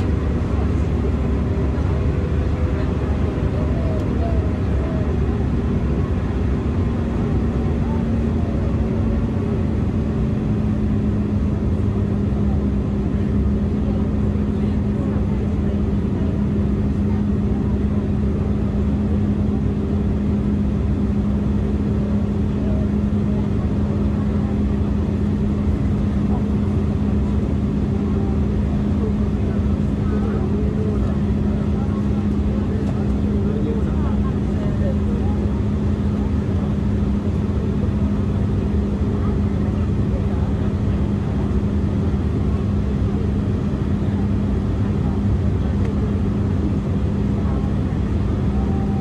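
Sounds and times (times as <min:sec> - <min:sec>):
jet engines and airflow rumble: 0:00.0 - 0:49.0
steady cabin hum: 0:22.0 - 0:49.0.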